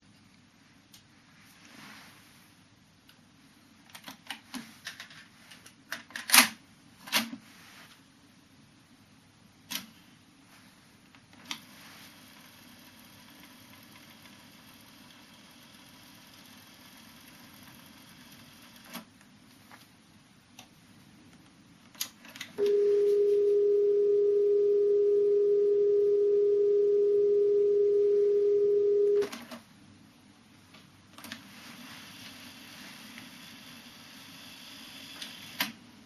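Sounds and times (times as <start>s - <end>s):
tape hiss: 6.7s - 36.0s
steady test tone: 22.6s - 29.2s.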